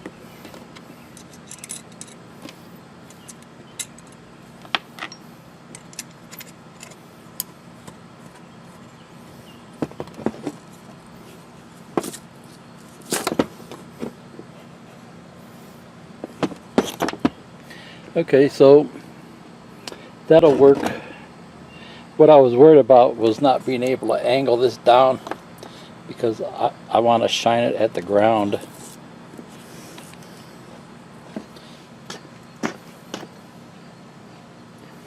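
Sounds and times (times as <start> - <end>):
metal parts clicking and clinking: 1.1 - 2.2, 3.1 - 4.2, 5.0 - 7.0.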